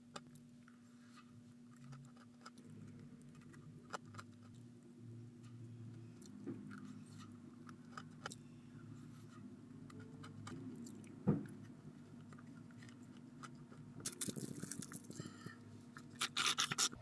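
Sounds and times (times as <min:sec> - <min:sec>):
low steady hum: 0:00.0 - 0:17.0
person chewing cookie: 0:09.7 - 0:17.0
small crunches and clicks: 0:12.2 - 0:17.0.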